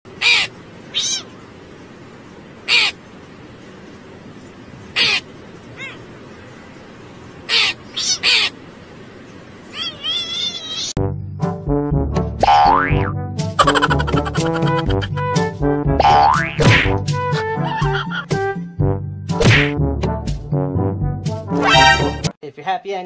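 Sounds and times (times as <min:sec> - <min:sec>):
bird chirping calls: 0:00.1 - 0:02.0, 0:02.6 - 0:11.0
crow cawing: 0:00.2 - 0:01.3, 0:02.7 - 0:03.0, 0:05.0 - 0:06.0, 0:07.5 - 0:08.6.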